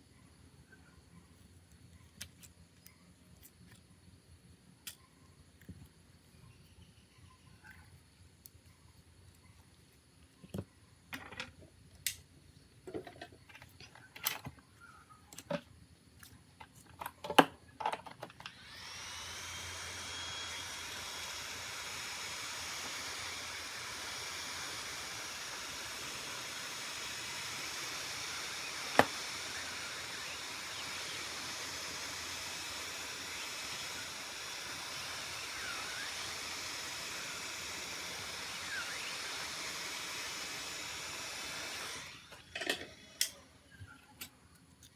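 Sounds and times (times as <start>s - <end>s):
small blower motor hissing: 18.3s - 44.9s.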